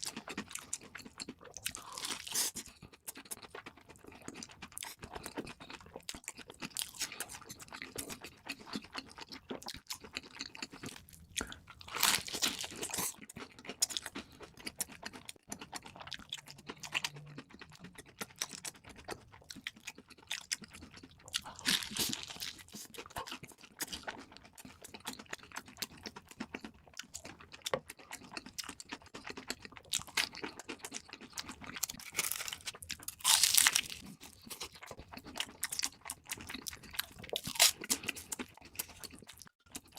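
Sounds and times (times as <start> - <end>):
wet chewing: 0.0 - 39.9
crunchy bites: 21.4 - 24.2, 29.2 - 39.4.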